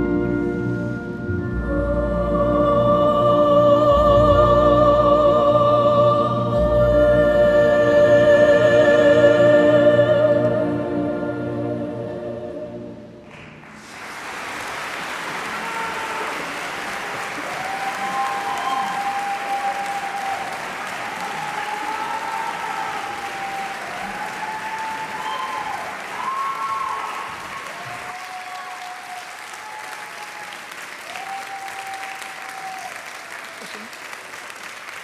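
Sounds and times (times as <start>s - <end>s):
orchestral accompaniment: 0.0s - 13.2s
woman singing with vibrato: 1.4s - 12.9s
audience applause: 13.3s - 35.0s.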